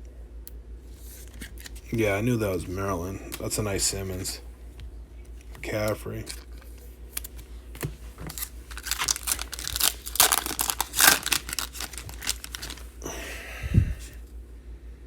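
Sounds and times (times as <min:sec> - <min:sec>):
card pack wrappers crinkling: 0:05.4 - 0:13.0.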